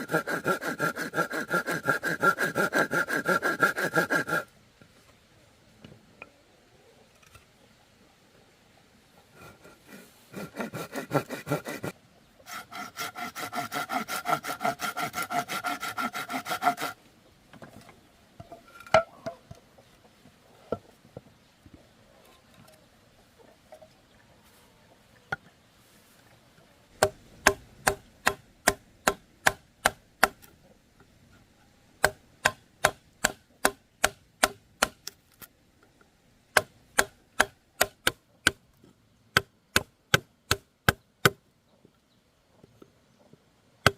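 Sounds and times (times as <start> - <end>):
hand saw cutting bamboo: 0.0 - 4.5, 9.4 - 17.0, 27.0 - 30.4, 32.0 - 35.0
chopping strikes on wood: 27.0 - 30.4, 32.0 - 35.0.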